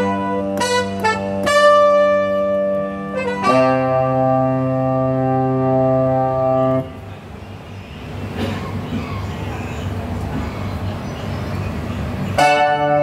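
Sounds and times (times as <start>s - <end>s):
keyboard playing held wind chords: 0.0s - 7.2s, 12.2s - 13.0s.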